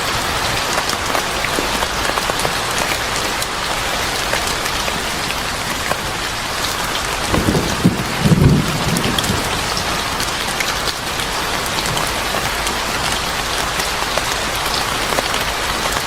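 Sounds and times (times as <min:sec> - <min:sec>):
rain falling: 0:00.0 - 0:16.0
thunder rumbling: 0:07.2 - 0:10.7.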